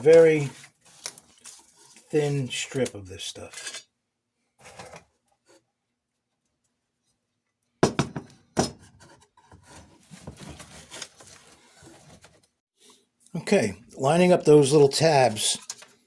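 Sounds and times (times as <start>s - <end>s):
plastic sheet rustling: 0.0s - 2.8s
sharp knocks on workbench: 7.8s - 8.8s.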